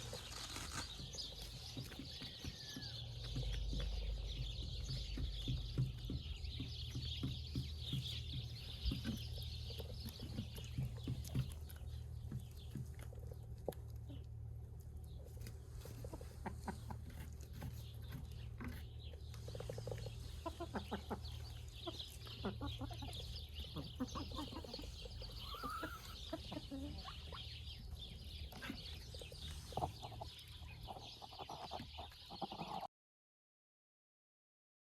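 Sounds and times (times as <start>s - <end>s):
chickens clucking: 0.0s - 32.9s.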